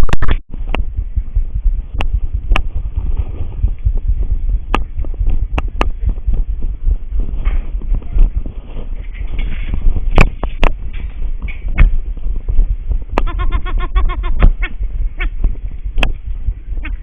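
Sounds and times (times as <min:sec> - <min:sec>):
sharp knocks and clatter: 0:07.4 - 0:12.0
goat bleating: 0:13.2 - 0:14.5.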